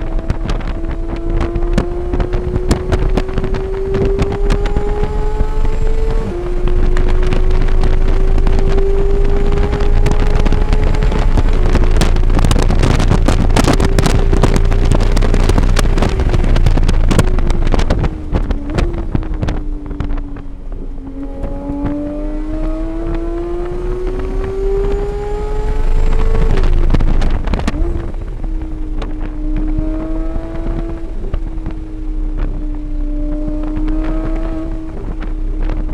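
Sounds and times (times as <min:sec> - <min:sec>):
car engine revving: 0:00.0 - 0:35.9
wind buffeting microphone: 0:00.0 - 0:35.9.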